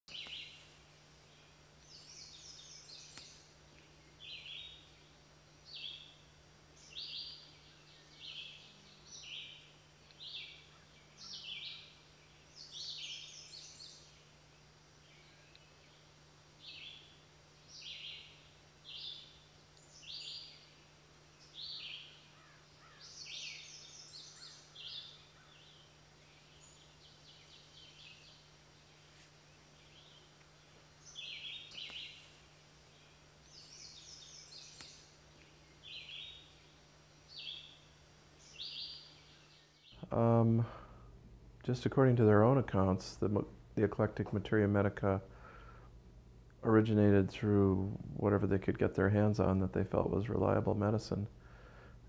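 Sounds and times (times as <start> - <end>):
birds chirping: 0.1 - 41.0
faint low hum: 0.1 - 52.0.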